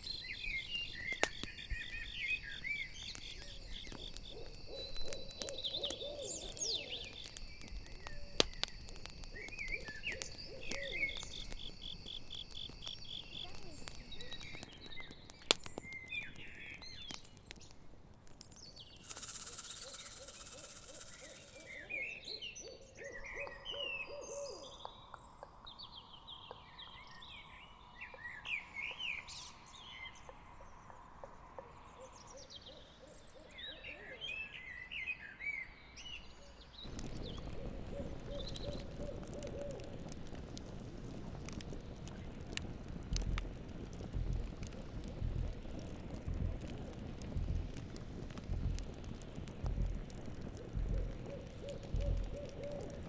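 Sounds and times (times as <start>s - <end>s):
campfire crackling: 0.0s - 22.2s, 36.8s - 53.0s
chirping bird calls: 0.1s - 11.9s, 19.0s - 25.1s, 36.2s - 39.9s
owl hooting: 3.4s - 7.4s, 8.1s - 11.5s, 19.0s - 24.9s, 36.9s - 40.0s, 50.6s - 53.0s
burst of hiss: 19.0s - 21.9s.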